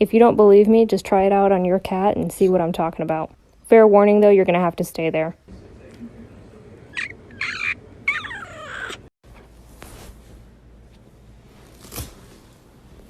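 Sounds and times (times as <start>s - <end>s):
cat meowing: 7.0s - 9.1s.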